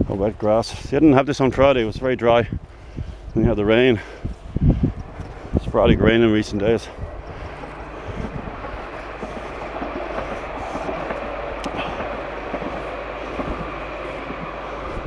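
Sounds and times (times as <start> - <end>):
tram running past: 2.6 - 15.0.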